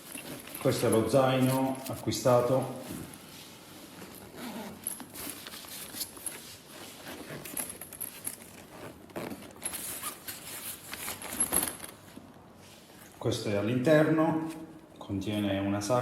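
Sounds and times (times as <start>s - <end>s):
fabric rustling and scraping: 0.0s - 13.2s
zipper unzipping: 4.2s - 5.0s.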